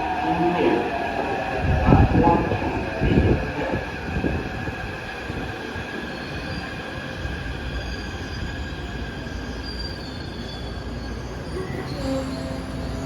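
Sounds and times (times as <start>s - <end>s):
metro train mechanical noise: 0.0s - 13.0s.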